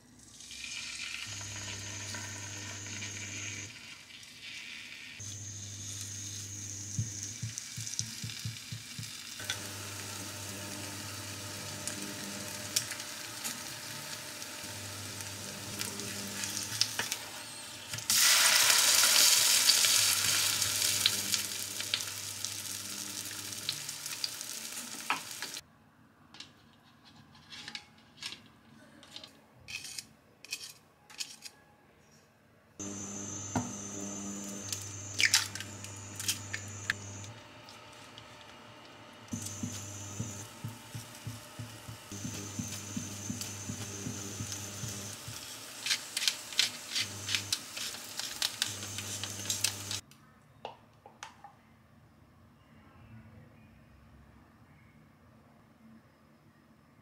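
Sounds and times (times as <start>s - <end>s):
butter sizzling in a pan: 0.3s - 25.6s, 32.8s - 50.0s
chicken sizzling in a frying pan: 0.3s - 25.6s, 32.8s - 50.0s.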